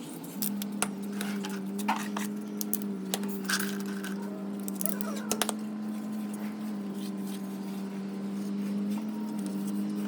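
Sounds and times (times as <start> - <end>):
hard objects clinking: 0.4 - 5.7.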